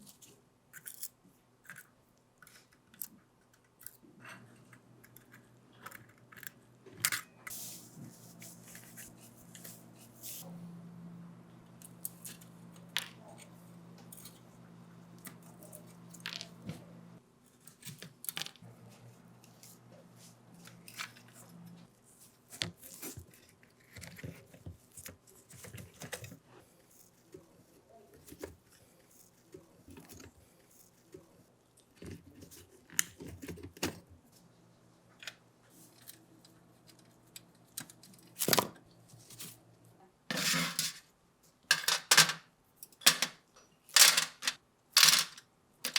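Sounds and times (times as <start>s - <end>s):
low steady hum: 5.1s - 17.2s
small hard objects handled: 44.0s - 45.9s.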